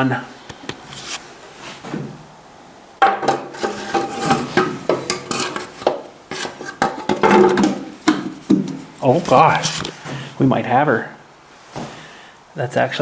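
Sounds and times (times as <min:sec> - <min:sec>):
metal clanking and scraping: 0:03.0 - 0:10.3.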